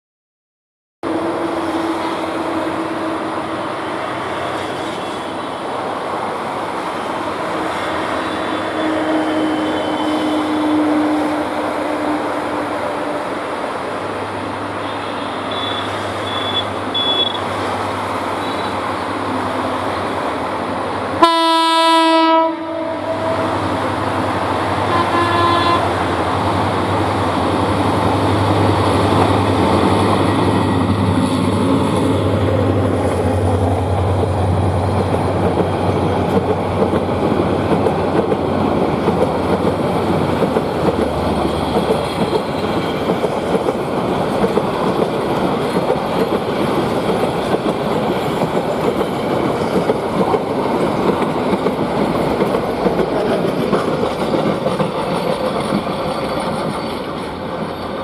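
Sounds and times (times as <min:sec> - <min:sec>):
locomotive horn blast: 0:08.3 - 0:12.8, 0:14.8 - 0:17.4, 0:21.2 - 0:23.8, 0:24.8 - 0:26.4
train wheels clattering on rails: 0:23.6 - 0:58.0.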